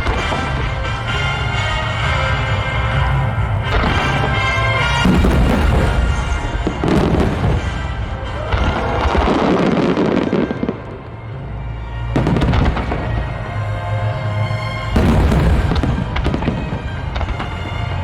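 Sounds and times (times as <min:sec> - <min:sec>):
fireworks booming and crackling: 0:00.0 - 0:11.2, 0:12.2 - 0:13.4, 0:14.9 - 0:18.0
music: 0:00.0 - 0:18.0.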